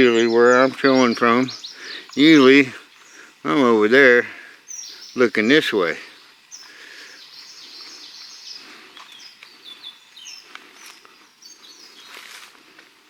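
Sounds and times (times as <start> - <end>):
birds chirping and singing: 0.0 - 12.4
faint steady hiss: 0.0 - 13.0.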